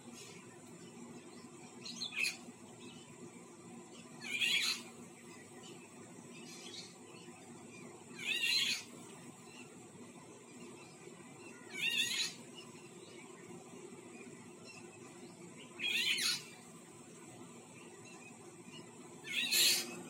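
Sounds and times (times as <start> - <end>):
bird wavering cat-like call: 8.2 - 8.9, 11.7 - 12.4, 15.8 - 16.4.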